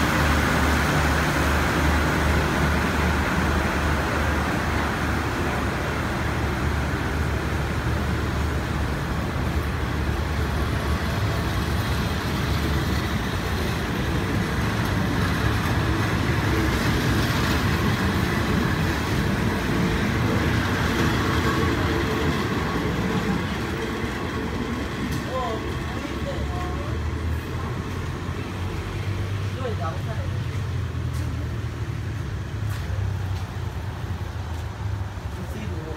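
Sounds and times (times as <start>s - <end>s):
train wheels rumbling on rails: 0.0s - 35.9s.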